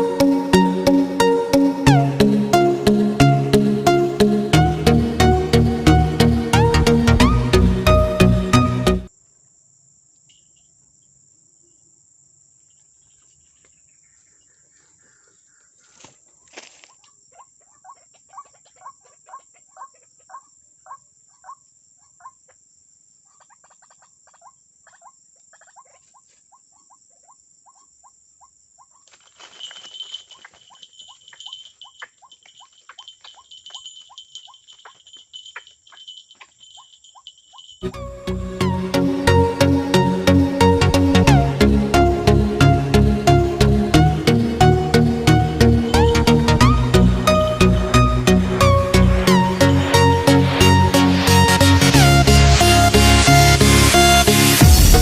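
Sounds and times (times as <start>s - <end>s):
high insect trilling: 28.9s - 37.9s.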